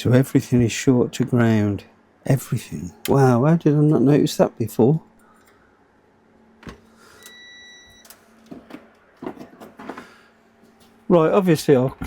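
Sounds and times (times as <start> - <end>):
multimeter continuity beep: 7.2 - 8.1.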